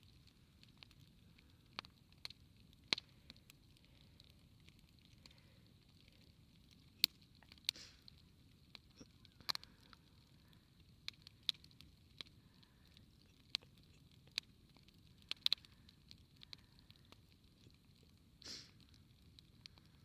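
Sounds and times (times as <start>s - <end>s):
campfire crackling and popping: 0.0s - 20.0s
low hiss: 0.0s - 20.0s.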